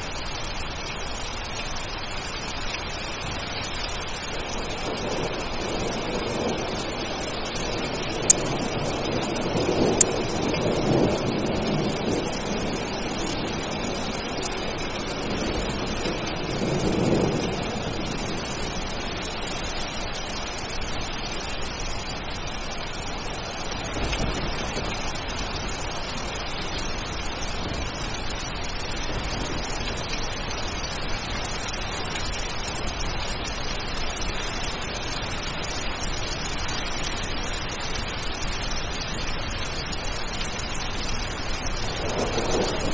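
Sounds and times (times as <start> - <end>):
steady rain: 0.0 - 42.9
thunder rumbling: 4.2 - 21.2, 21.8 - 31.4, 41.4 - 42.9.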